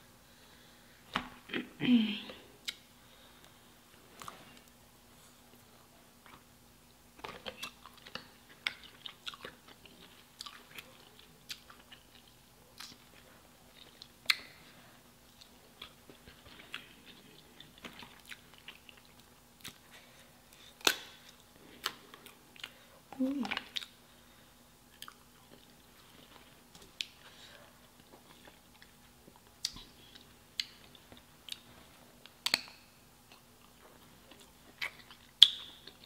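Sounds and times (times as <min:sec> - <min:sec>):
person chewing: 0:02.6 - 0:02.8, 0:07.2 - 0:24.2, 0:24.9 - 0:36.0.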